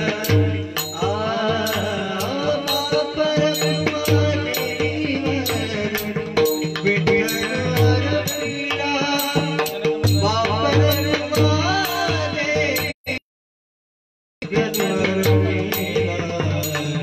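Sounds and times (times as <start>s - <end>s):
drum strokes: 0.0s - 13.2s.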